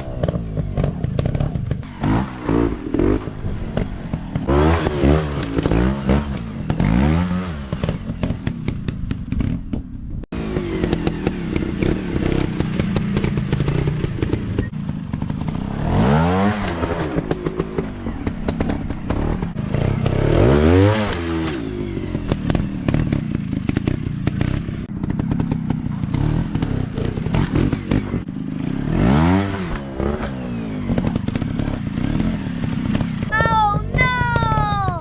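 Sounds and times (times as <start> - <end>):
motorcycle engines revving: 10.4 - 33.2.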